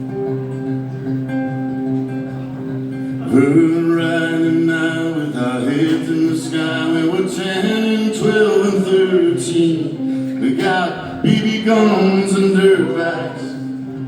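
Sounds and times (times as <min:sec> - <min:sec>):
acoustic guitar strumming: 0:00.0 - 0:14.0
man singing: 0:03.2 - 0:13.9.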